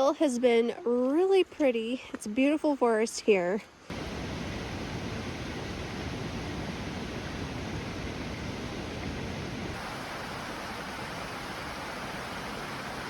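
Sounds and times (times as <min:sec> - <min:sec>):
falling water rushing: 0:03.9 - 0:13.0.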